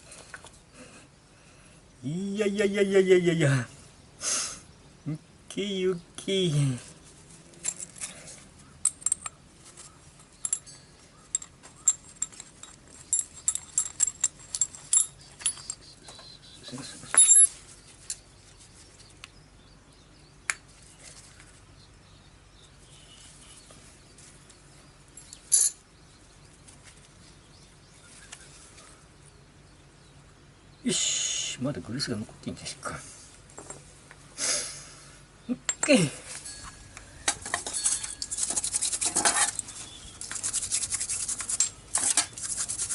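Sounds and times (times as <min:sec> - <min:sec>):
metal parts clinking: 0:07.6 - 0:08.2, 0:08.8 - 0:09.4, 0:10.2 - 0:15.9, 0:17.1 - 0:18.2, 0:25.2 - 0:25.8, 0:35.7 - 0:42.6.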